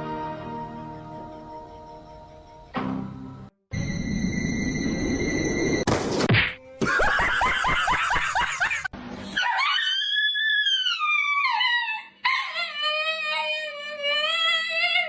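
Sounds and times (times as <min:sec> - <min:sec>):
dog yipping and howling: 0:09.4 - 0:15.0.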